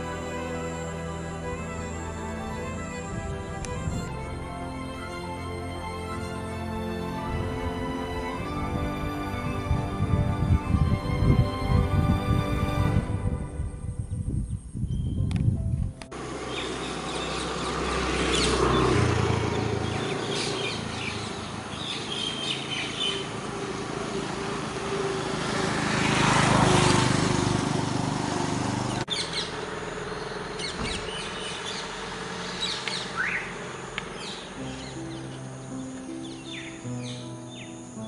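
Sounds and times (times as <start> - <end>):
outdoor background noise: 0.0 - 38.0
small birds chirping: 16.4 - 25.4, 28.8 - 38.0.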